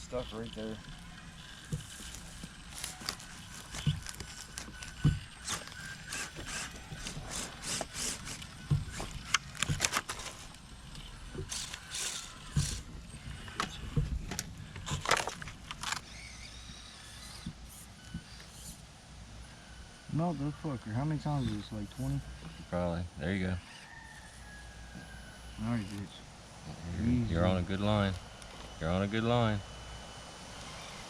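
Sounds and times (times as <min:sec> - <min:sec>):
electric motor and gears whirring: 0:00.0 - 0:31.0
toy car clattering and knocking: 0:00.3 - 0:17.7.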